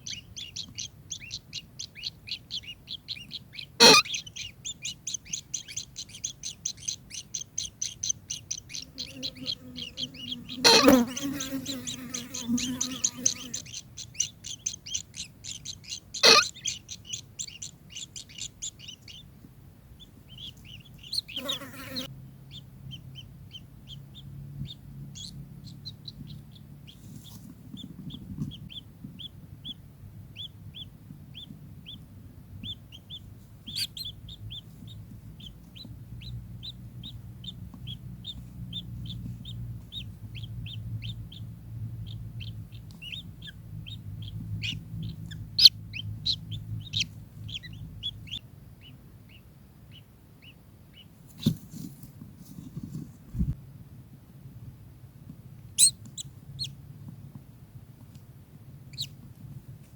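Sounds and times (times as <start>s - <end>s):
kingfisher calling sharp notes: 3.8s - 4.4s, 16.2s - 16.8s.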